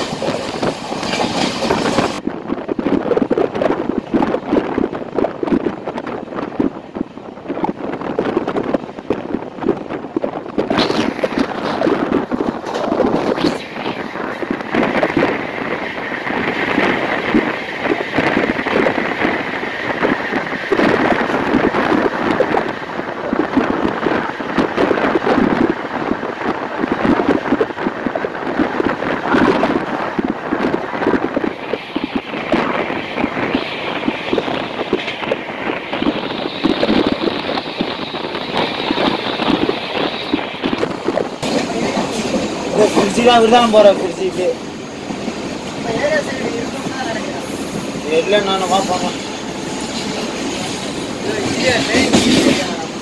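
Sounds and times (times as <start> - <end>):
train wheels clattering on rails: 0.0 - 2.2, 33.8 - 53.0
wind rushing over microphone: 0.0 - 53.0
high steady whine: 10.7 - 18.5, 31.3 - 44.5.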